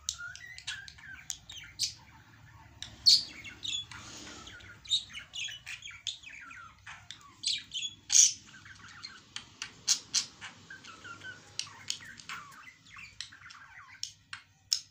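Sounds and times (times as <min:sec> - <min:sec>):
birds chirping and squawking: 0:00.0 - 0:14.9.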